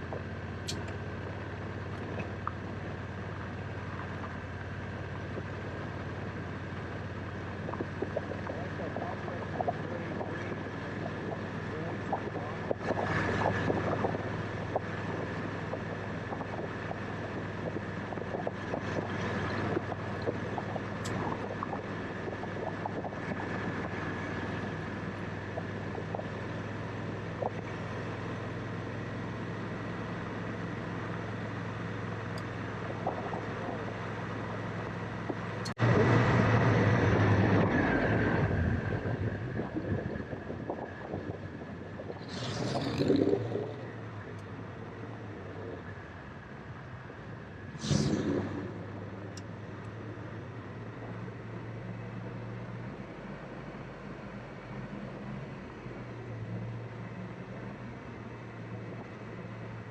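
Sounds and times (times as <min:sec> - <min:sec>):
wind noise on microphone: 0:07.2 - 0:28.2, 0:32.6 - 0:44.2.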